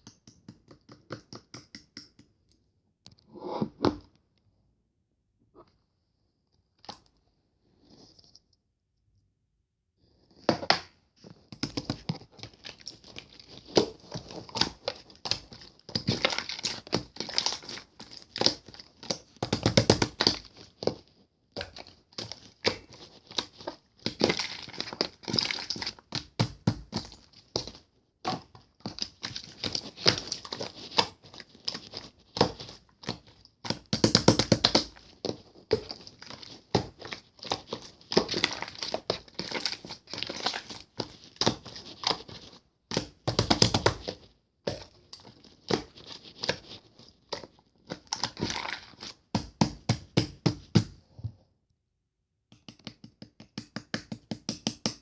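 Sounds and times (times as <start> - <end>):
crinkling and crackling: 10.2 - 51.5.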